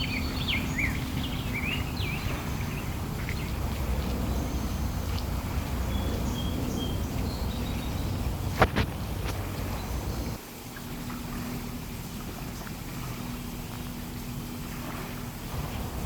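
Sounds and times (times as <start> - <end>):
birds chirping: 0.0 - 10.4
low outdoor rumble: 0.0 - 16.0.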